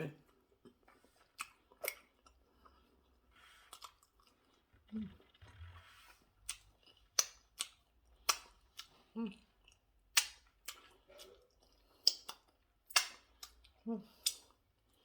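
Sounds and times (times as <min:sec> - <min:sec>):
person chewing food: 0:00.1 - 0:15.0.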